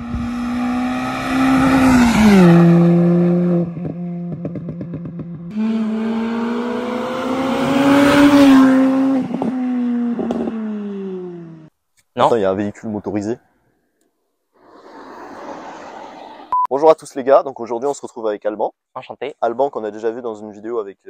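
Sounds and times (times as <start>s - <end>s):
car engine driving past: 14.6s - 16.5s.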